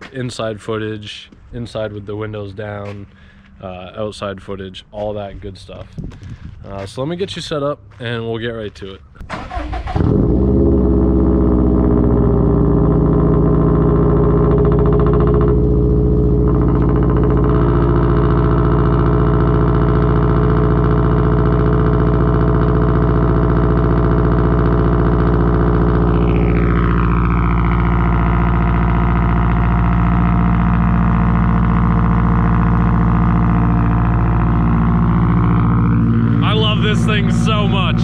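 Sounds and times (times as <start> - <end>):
car engine idling: 9.3 - 38.0
faint high sweeping tone: 33.6 - 38.0.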